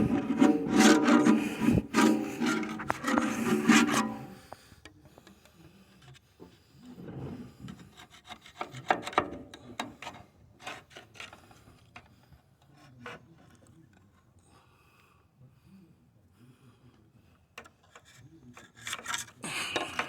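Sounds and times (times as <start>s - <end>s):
scraping and rubbing: 0.0s - 4.4s, 17.8s - 20.0s.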